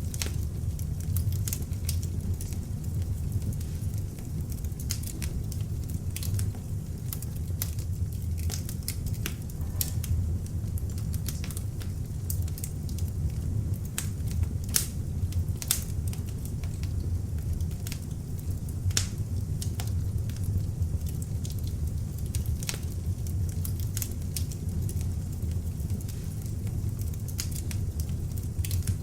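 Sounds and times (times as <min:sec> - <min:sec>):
log fire crackling and popping: 0:00.0 - 0:29.0.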